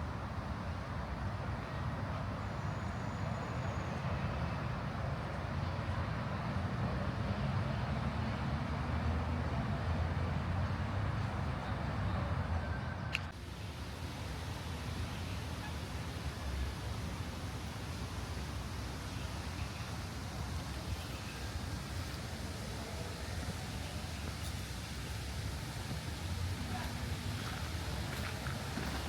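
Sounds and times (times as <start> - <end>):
city traffic rumble: 0.0 - 29.0.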